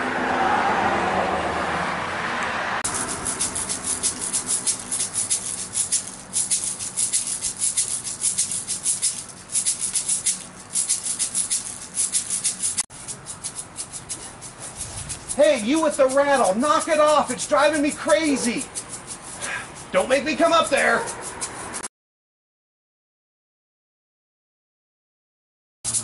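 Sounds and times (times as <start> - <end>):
toy rattle shaken: 2.8 - 21.9.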